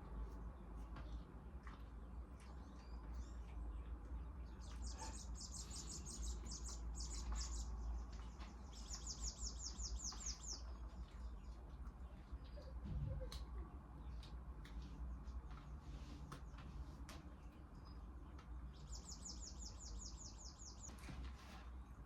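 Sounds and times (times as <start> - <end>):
small bird chirping: 2.4 - 12.7, 18.7 - 21.0.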